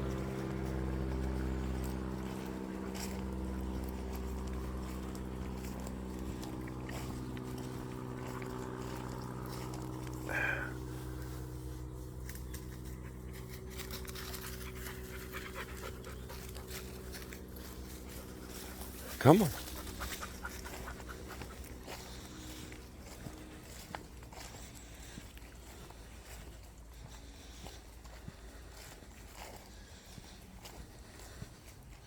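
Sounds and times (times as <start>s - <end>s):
steady low hum: 0.0s - 32.0s
dog panting: 0.1s - 11.7s, 12.3s - 32.0s.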